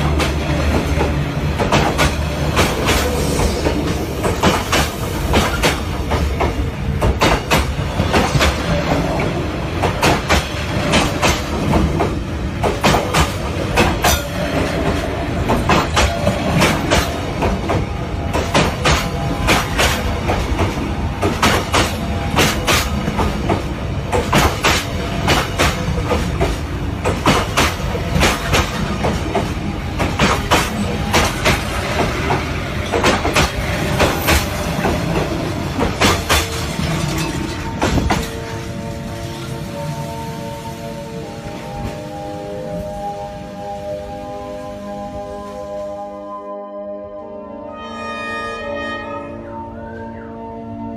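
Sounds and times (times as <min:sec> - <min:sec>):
wheels clacking over rail joints: 0:00.0 - 0:40.1
train rumble: 0:00.0 - 0:46.2.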